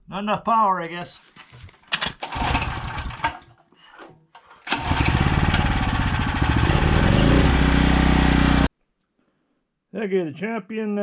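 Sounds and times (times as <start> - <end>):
motor-driven machine running: 4.8 - 8.7.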